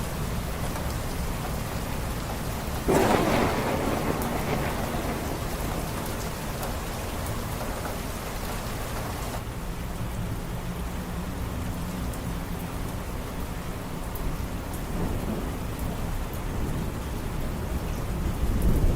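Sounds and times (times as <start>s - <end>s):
steady rain falling: 0.0s - 18.9s
thunder crack and rumble: 2.0s - 9.6s, 14.1s - 18.9s.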